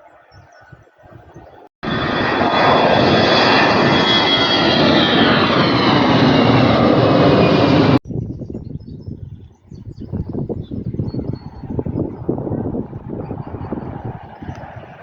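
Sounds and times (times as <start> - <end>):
jet engines whining: 1.0 - 8.0, 10.9 - 15.0.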